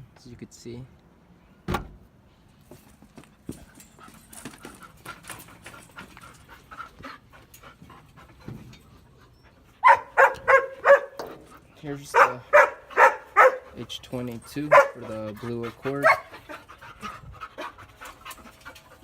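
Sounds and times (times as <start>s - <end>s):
dog panting: 3.5s - 19.0s
dog barking: 9.8s - 11.2s, 12.1s - 13.8s, 14.7s - 15.1s, 16.0s - 16.3s.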